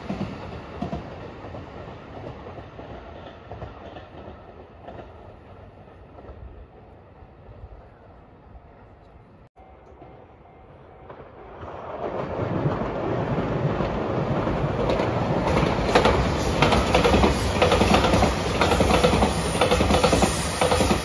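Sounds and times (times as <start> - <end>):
train passing: 0.0 - 21.0
wheels clacking over rail joints: 11.1 - 21.0.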